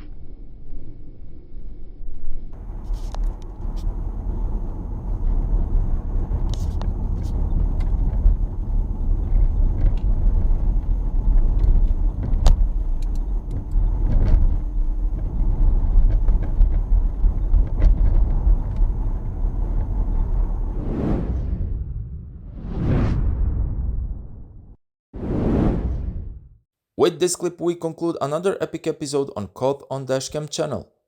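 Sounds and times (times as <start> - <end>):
car road rumble: 2.6 - 21.9.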